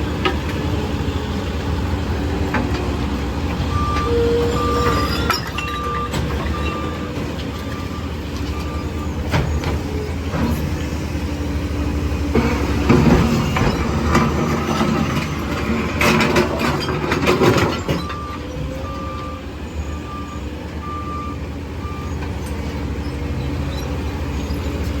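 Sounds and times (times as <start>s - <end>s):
garbage truck diesel engine: 0.0s - 25.0s
clattering and knocking: 12.4s - 18.3s.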